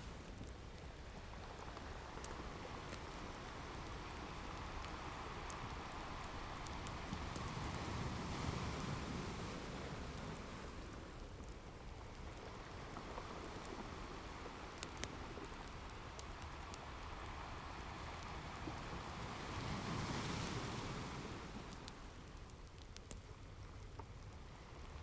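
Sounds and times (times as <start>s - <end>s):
wood fire crackling: 0.0s - 25.0s
ocean waves washing in: 17.8s - 22.2s.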